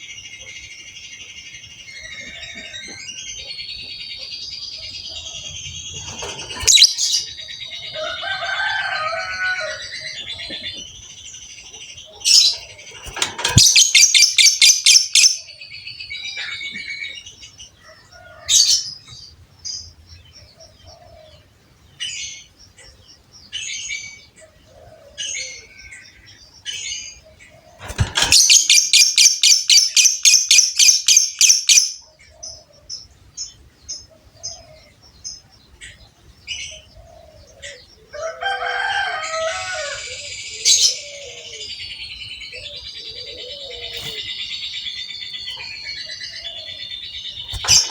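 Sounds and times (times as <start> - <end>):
lovebird trilling and chirping: 5.2 - 7.3, 12.2 - 15.5, 27.7 - 32.0, 43.6 - 47.9.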